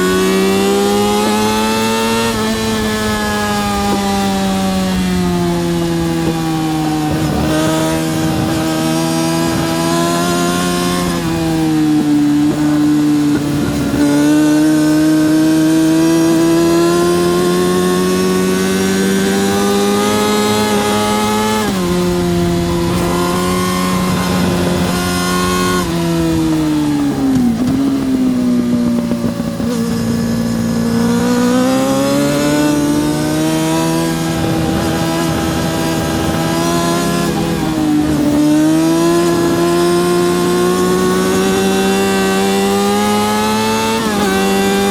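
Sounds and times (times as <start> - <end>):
motorcycle engine at high revs: 0.0 - 44.9.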